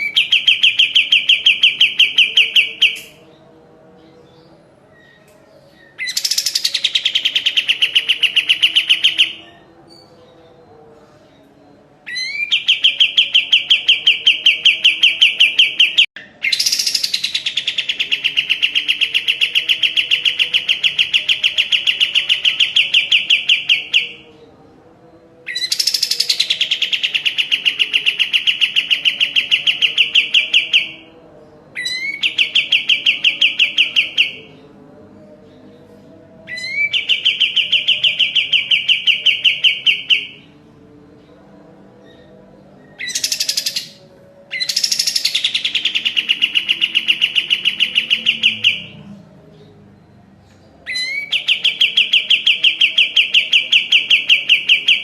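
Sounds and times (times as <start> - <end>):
bird singing fast trills: 0.0 - 3.3, 5.8 - 10.2, 25.5 - 34.5, 42.9 - 49.0.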